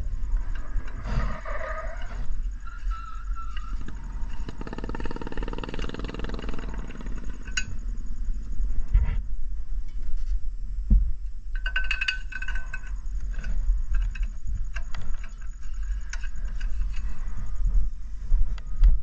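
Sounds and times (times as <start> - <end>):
steady low rumble: 0.0 - 19.0
small petrol engine revving: 4.4 - 7.4.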